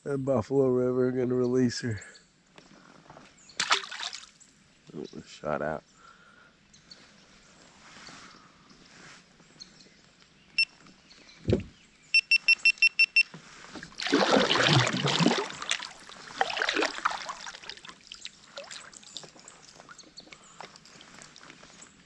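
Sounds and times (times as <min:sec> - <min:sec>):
water splashing from kayak: 0:03.6 - 0:04.4, 0:13.7 - 0:21.5
low thump: 0:11.4 - 0:11.8
short electronic beeps: 0:12.1 - 0:13.3.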